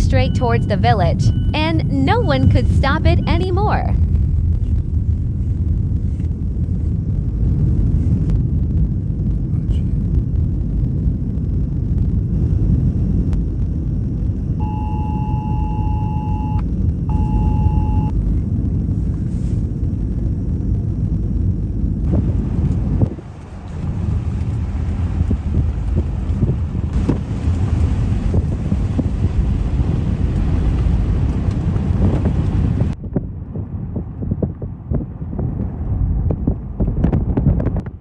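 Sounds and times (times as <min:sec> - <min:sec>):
steady high tone: 0:00.0 - 0:04.0, 0:14.5 - 0:18.1
wind buffeting microphone: 0:00.0 - 0:38.0.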